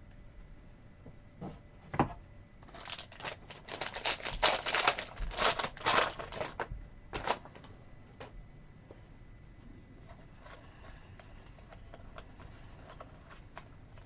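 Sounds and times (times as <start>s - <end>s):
card wrappers crinkling: 2.6s - 7.7s.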